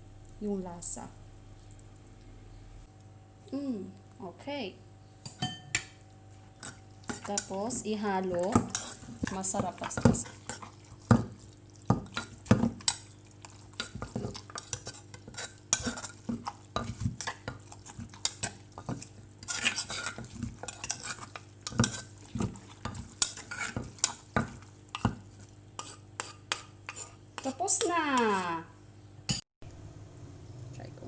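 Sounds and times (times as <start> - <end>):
faint steady hum: 0.0 - 9.3
utensil knocking and scraping dish: 13.8 - 25.2.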